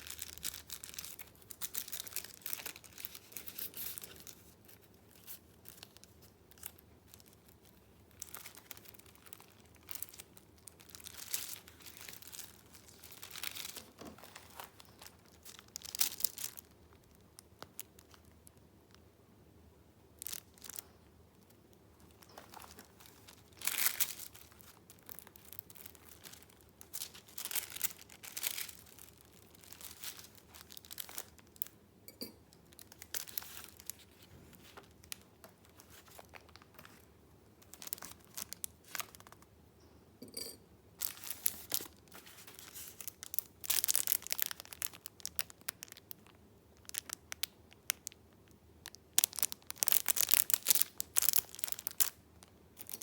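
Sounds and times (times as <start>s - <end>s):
paper rustling and crinkling: 0.0s - 16.7s, 22.0s - 31.6s, 32.8s - 39.4s, 41.0s - 46.0s.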